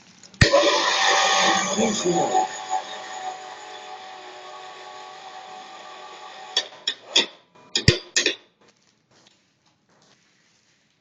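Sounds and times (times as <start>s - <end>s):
pipe-bending machine humming: 0.4s - 8.4s
sharp metal knocks and clanks: 6.6s - 8.5s.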